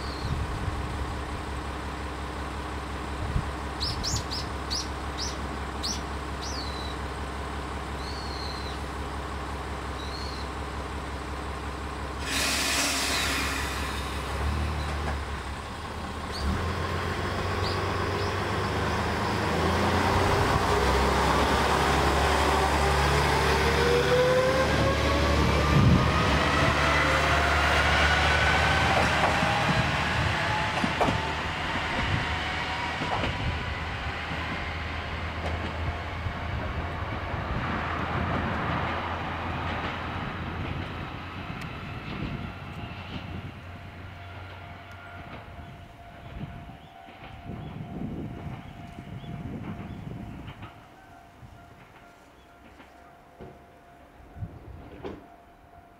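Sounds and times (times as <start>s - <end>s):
diesel railcar engine: 0.0s - 55.9s
air hiss: 12.2s - 14.4s.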